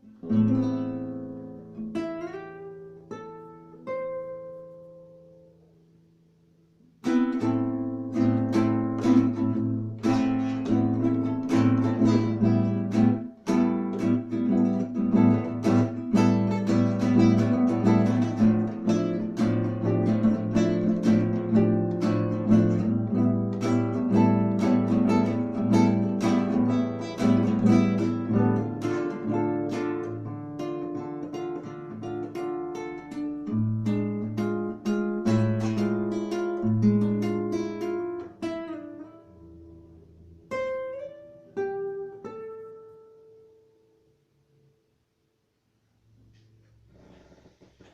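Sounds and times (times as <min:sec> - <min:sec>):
acoustic guitar playing: 0:00.0 - 0:44.8.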